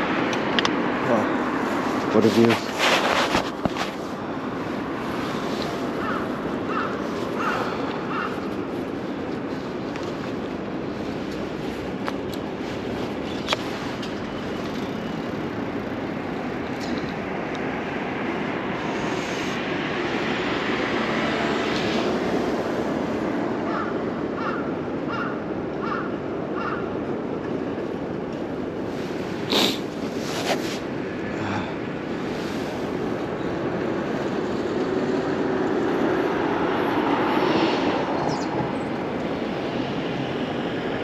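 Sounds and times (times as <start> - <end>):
wind rush while cycling: 0.0 - 41.0
crow cawing: 6.0 - 8.5, 23.7 - 27.0.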